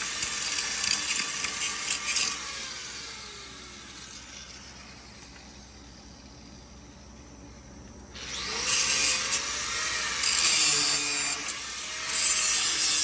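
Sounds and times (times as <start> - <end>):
power grinder on steel: 0.0 - 5.0, 8.2 - 13.0.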